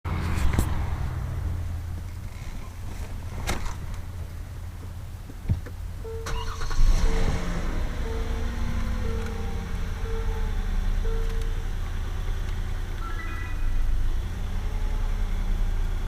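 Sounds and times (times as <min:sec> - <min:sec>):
low engine rumble: 0:00.1 - 0:16.0
chime tone: 0:08.0 - 0:11.4, 0:13.0 - 0:14.0.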